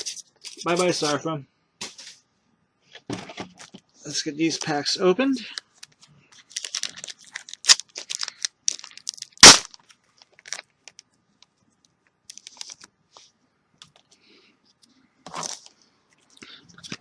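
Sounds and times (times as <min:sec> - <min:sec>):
wrapper crinkling: 0:06.4 - 0:11.0, 0:12.3 - 0:12.9.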